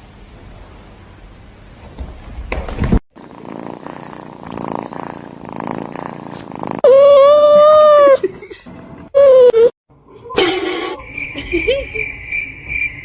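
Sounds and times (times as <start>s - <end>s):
cat purring: 3.1s - 6.9s.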